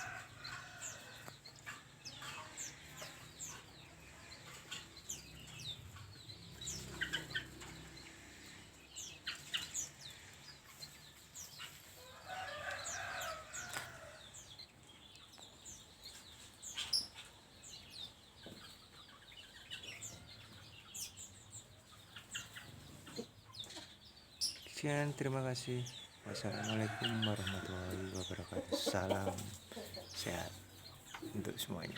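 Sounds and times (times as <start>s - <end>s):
chicken clucking: 0.0s - 8.0s, 15.0s - 24.4s, 26.4s - 31.9s
small birds chirping: 0.0s - 31.9s.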